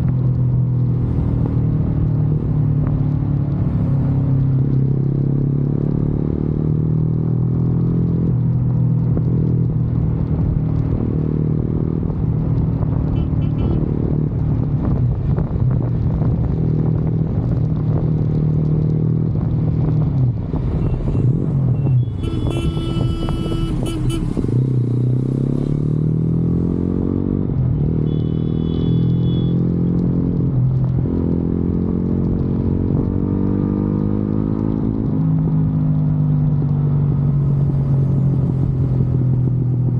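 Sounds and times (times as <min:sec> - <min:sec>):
motorcycle engine accelerating: 0:00.0 - 0:39.9
high steady horn tone: 0:13.2 - 0:13.9, 0:21.8 - 0:24.8, 0:28.0 - 0:29.6.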